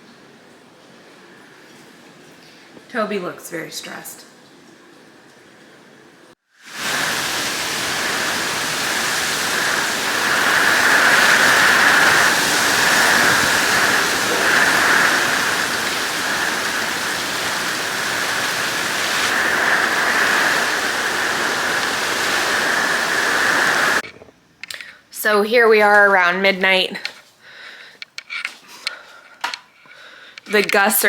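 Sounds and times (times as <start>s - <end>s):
wind: 4.4s - 24.8s
heavy rain: 6.6s - 24.0s.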